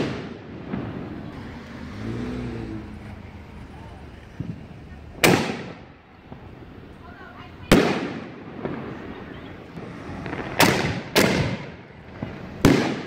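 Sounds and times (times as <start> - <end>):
firework bangs: 0.0 - 13.0.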